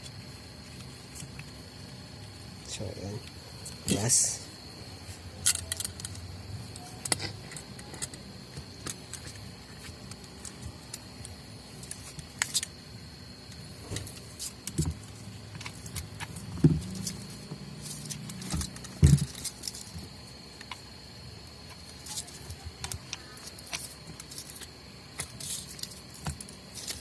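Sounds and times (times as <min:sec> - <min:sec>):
tools and parts clicking and tapping: 0:05.4 - 0:12.7, 0:13.5 - 0:20.8, 0:21.7 - 0:27.0.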